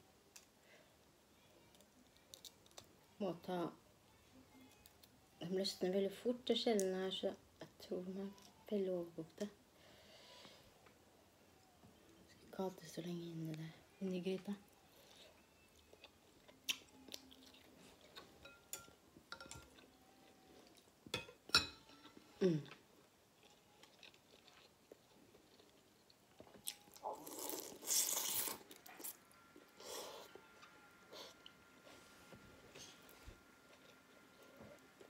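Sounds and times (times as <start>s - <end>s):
chewing and crunching: 14.7s - 18.4s, 23.4s - 29.7s.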